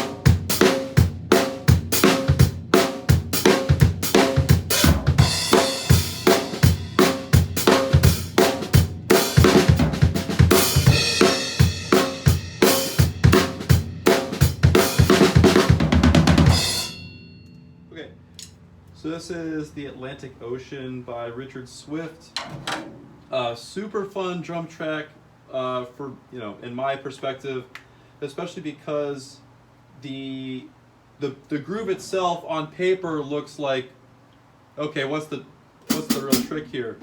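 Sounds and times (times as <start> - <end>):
drum kit playing a groove: 0.0 - 17.2, 35.9 - 36.6.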